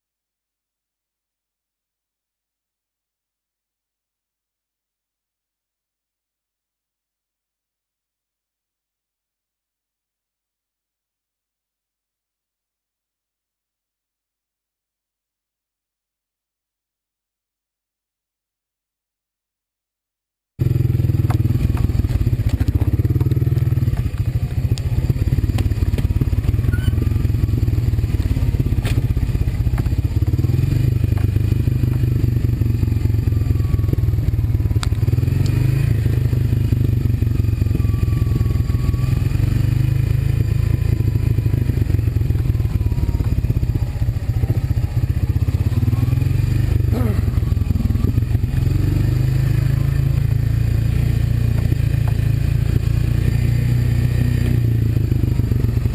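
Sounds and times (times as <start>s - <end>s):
quad engine running: 20.6s - 55.9s.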